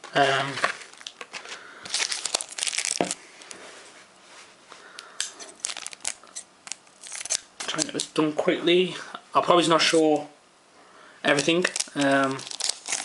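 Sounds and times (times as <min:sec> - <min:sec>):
foil wrappers crinkling: 0:00.5 - 0:03.6, 0:05.3 - 0:08.1, 0:11.3 - 0:13.0.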